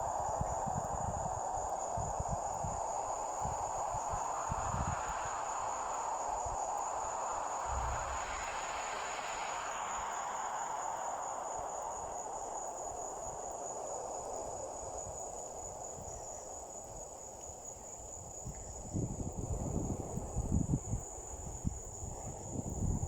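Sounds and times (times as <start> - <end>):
crickets chirring: 0.0 - 23.0
soft rushing hiss: 0.0 - 23.0.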